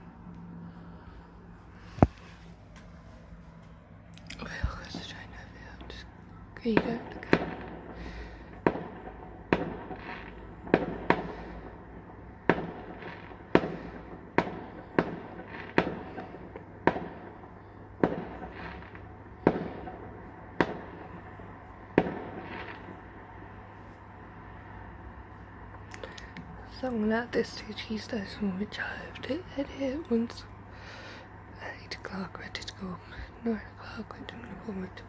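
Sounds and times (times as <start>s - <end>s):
fireworks bangs with echo: 6.6s - 23.4s.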